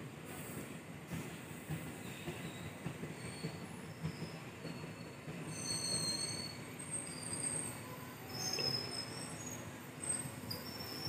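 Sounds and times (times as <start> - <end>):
high-pitched wheel squeal: 2.4 - 11.0.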